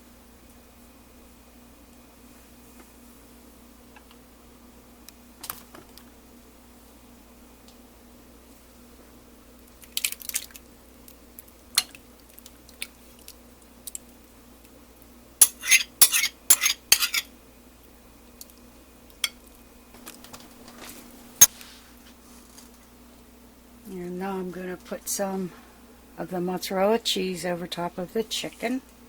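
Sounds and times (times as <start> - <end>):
utensils and dishes clinking: 15.4 - 17.3.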